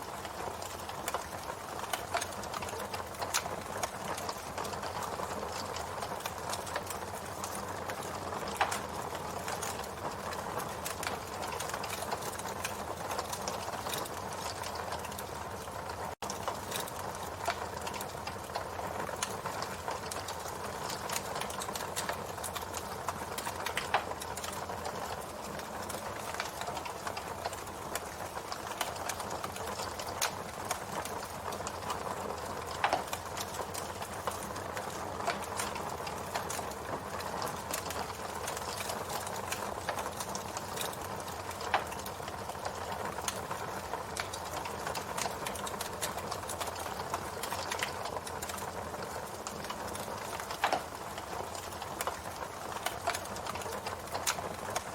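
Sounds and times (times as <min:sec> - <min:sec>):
campfire crackling and popping: 0:00.0 - 0:54.9.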